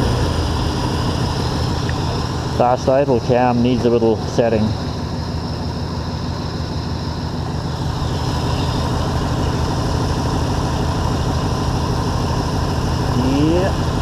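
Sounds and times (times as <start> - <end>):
car engine fast idle: 0.0 - 14.0.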